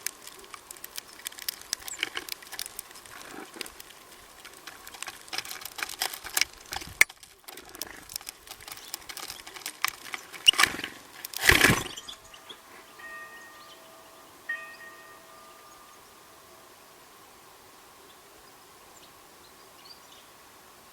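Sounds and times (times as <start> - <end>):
wings fluttering: 0.0 - 13.0
birds tapping and clicking: 0.0 - 14.0
ringing chime tones: 11.9 - 16.8.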